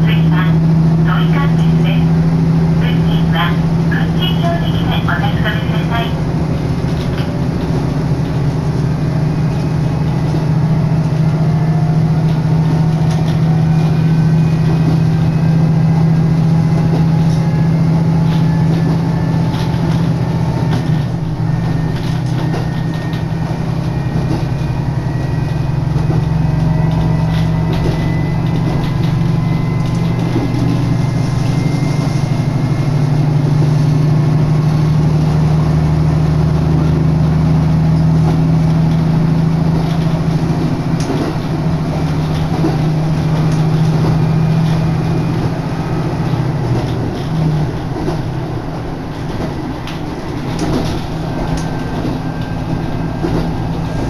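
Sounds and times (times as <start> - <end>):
railcar engine drone: 0.0 - 54.0
faint gliding whines: 21.4 - 33.5.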